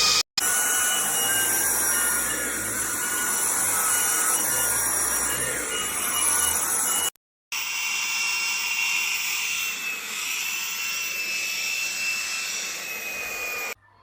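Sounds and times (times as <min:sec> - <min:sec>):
vacuum cleaner motor whine: 0:00.0 - 0:13.8.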